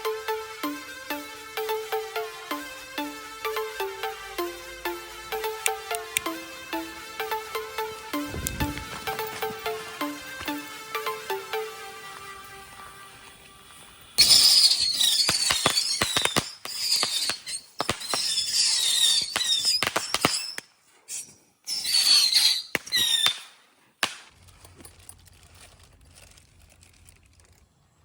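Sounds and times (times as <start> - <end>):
bottle rockets hissing and whistling: 0.1 - 24.3
firework pops and cracks: 13.2 - 24.6.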